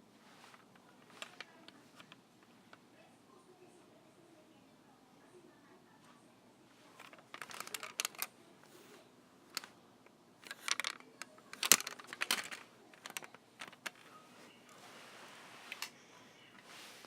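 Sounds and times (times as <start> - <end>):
small hard objects clicking: 7.0 - 8.3, 10.4 - 14.0.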